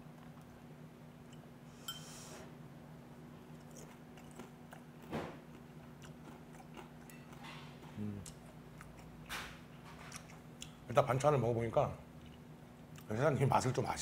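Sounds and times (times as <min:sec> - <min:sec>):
person chewing food: 0:03.4 - 0:10.8
person humming mm: 0:08.0 - 0:08.3.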